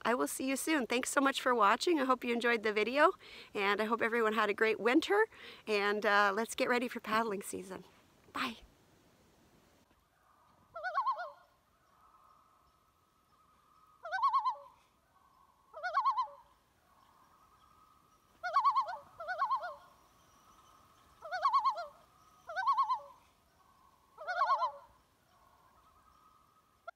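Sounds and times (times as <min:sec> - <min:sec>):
quavering bird calls: 0:10.0 - 0:26.9.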